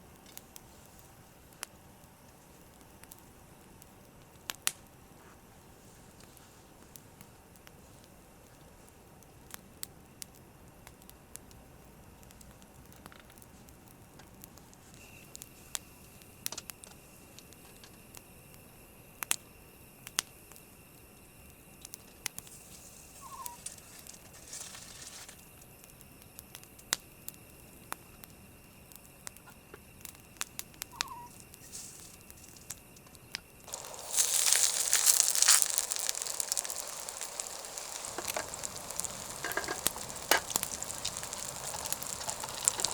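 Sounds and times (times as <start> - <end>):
campfire ticks and pops: 0.0 - 42.9
food sizzling in a pan: 33.7 - 42.9.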